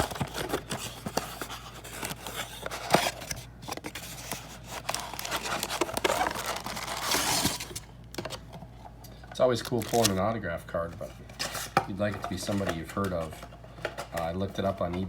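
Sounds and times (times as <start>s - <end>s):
packaging crinkling and tearing: 0.0s - 8.4s, 9.6s - 10.2s.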